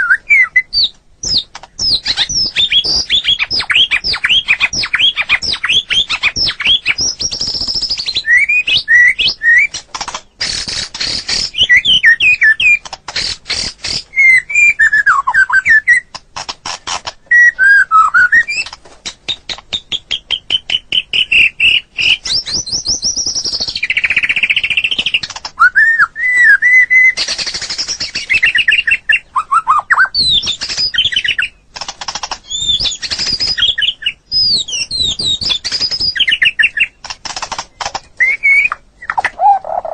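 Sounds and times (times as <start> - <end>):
songbird singing whistled phrases: 0.0 - 9.8, 10.4 - 16.2, 17.2 - 31.7, 32.4 - 37.0, 37.8 - 39.9
bird clicking and chattering: 9.7 - 14.1, 16.0 - 17.2, 18.5 - 25.6, 27.2 - 28.7, 30.4 - 33.8, 34.9 - 39.9.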